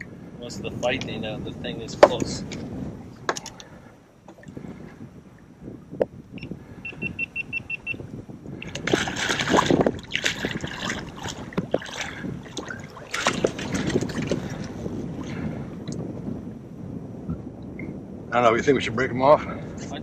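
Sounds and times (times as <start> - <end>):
fish thrashing and splashing: 8.6 - 15.4.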